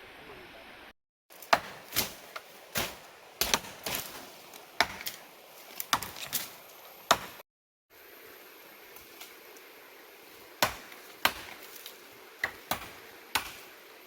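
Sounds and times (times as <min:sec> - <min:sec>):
blade chopping: 0:01.3 - 0:07.4, 0:10.6 - 0:13.8.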